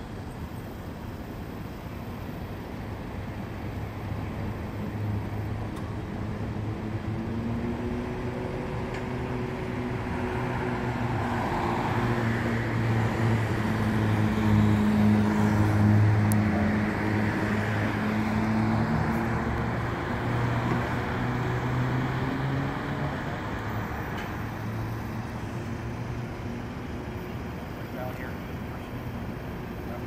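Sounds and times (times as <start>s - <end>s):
street traffic noise: 0.0s - 30.0s.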